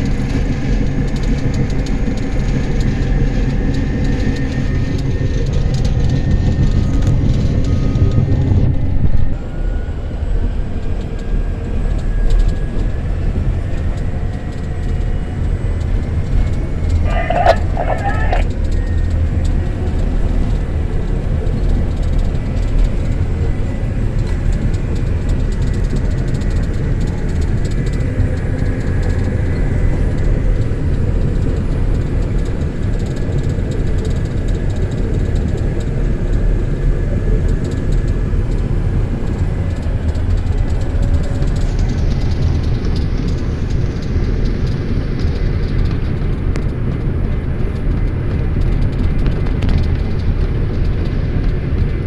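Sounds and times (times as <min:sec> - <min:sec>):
bulldozer diesel engine rumbling: 0:13.5 - 0:31.4.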